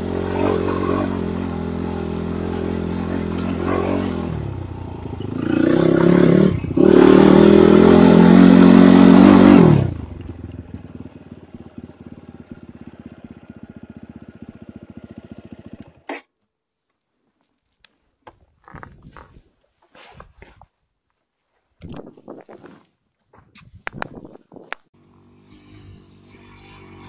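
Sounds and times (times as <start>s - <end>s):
motorcycle engine revving: 0.0s - 16.3s, 25.0s - 27.0s.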